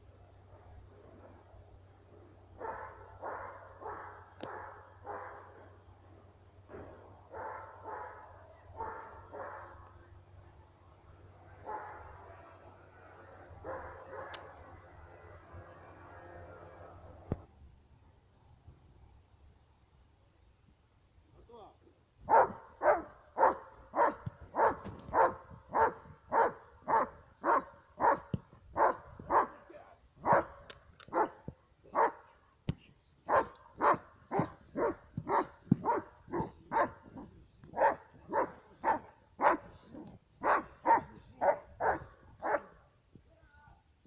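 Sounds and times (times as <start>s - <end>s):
dog barking: 2.6s - 5.6s, 7.3s - 9.8s, 11.6s - 12.1s, 13.6s - 14.4s, 22.3s - 29.6s, 30.2s - 32.3s, 33.3s - 42.8s.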